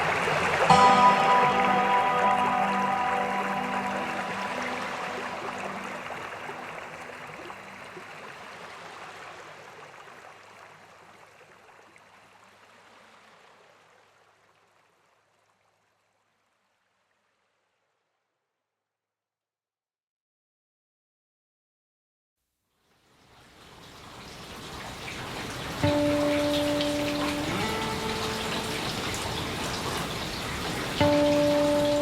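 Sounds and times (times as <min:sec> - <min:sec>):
rain-like water noise: 0:00.0 - 0:18.0, 0:22.7 - 0:32.0
music held notes: 0:00.7 - 0:08.1, 0:25.8 - 0:32.0.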